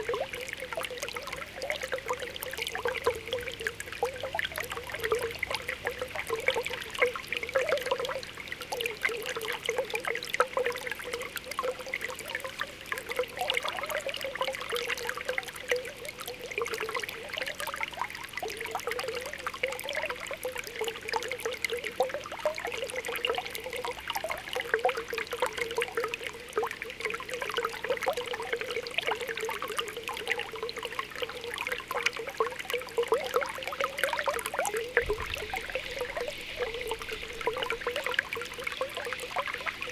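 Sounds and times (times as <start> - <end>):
spring water bubbling and gurgling: 0.0 - 39.9.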